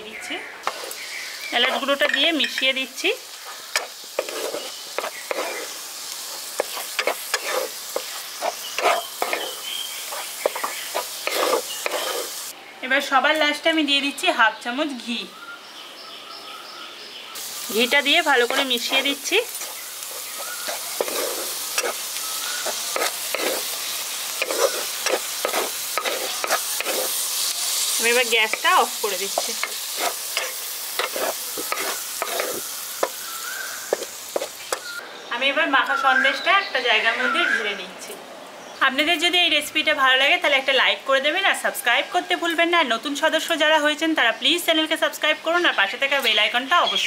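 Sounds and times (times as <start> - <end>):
spatula scraping a pan: 0.6 - 2.2, 3.4 - 12.5, 18.4 - 34.9
mixture sizzling in a pan: 0.6 - 12.6, 17.4 - 35.0.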